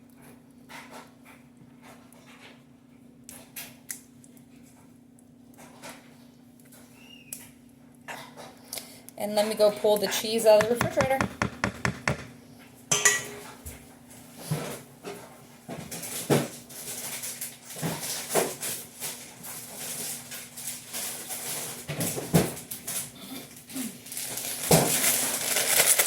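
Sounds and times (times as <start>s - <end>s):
knocks and clunks of kitchenware: 10.5s - 13.5s.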